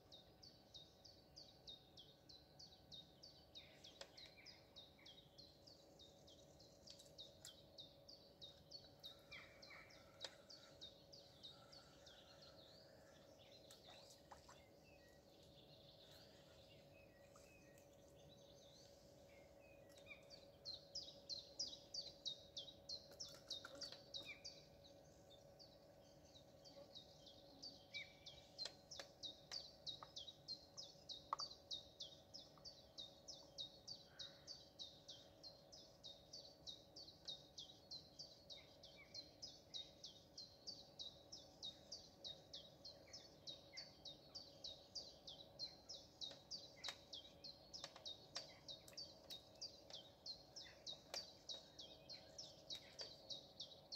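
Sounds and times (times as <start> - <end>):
small songbird calling: 0.0 - 53.9.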